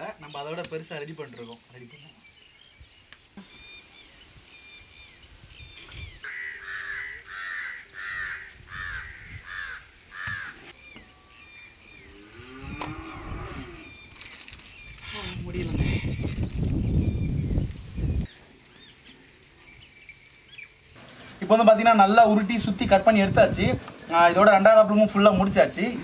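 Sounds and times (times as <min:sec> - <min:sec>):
bird calling: 0:00.0 - 0:22.1
faint small bird chirping: 0:10.7 - 0:21.0.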